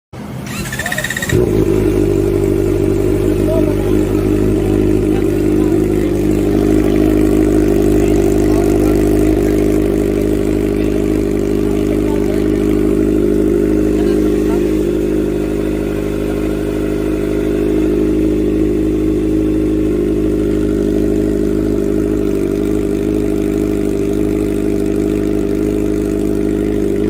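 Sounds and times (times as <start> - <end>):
motorcycle engine idling: 0.2 - 27.0
motorcycle engine starter cranking: 0.4 - 1.8.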